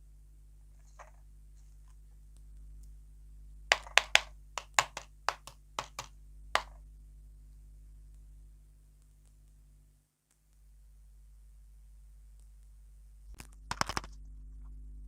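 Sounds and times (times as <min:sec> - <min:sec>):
quiet hum: 0:00.0 - 0:15.0.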